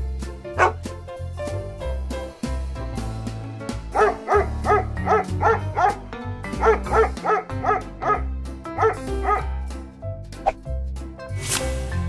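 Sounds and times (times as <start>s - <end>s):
background music with bass line: 0.0s - 12.0s
dog barking: 0.6s - 0.8s, 3.9s - 6.0s, 6.6s - 9.5s.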